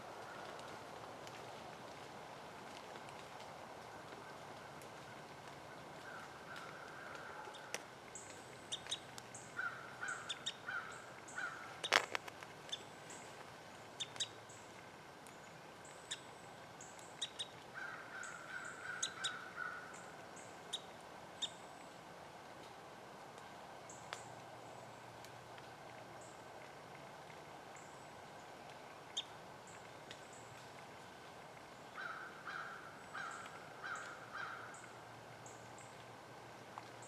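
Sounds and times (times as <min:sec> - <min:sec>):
crows cawing: 0:06.0 - 0:07.8, 0:09.6 - 0:11.8, 0:17.8 - 0:20.0, 0:32.0 - 0:34.9.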